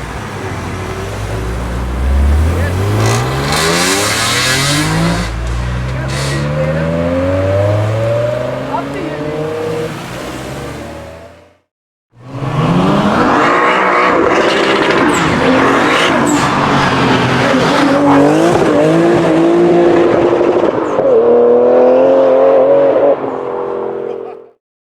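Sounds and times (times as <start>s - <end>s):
car engine revving hard: 0.0s - 24.2s
tyre squeal: 2.9s - 6.8s.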